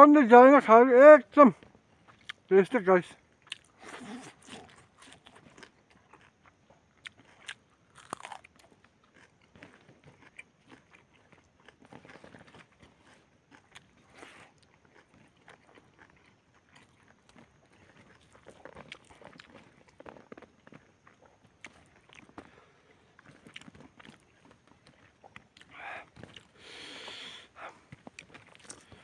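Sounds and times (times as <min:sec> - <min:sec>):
person chewing food: 0:01.6 - 0:02.5, 0:03.3 - 0:29.0
small crunches and mouth noises: 0:01.6 - 0:02.6, 0:03.2 - 0:29.0.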